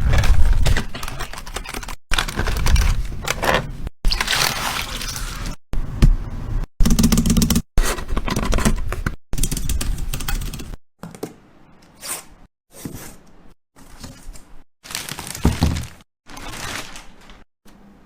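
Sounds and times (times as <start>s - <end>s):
plastic packaging crinkling and tearing: 4.1s - 5.6s, 14.9s - 17.4s.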